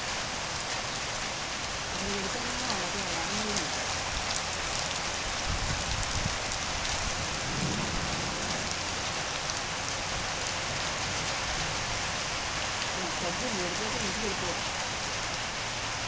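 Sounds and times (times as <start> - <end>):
heavy rain hissing: 0.0 - 16.0
thunder rumbling: 5.4 - 12.2.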